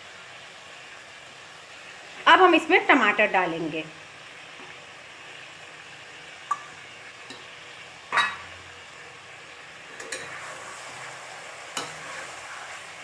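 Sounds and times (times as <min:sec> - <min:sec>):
curry sizzling in a pan: 0:00.0 - 0:13.0.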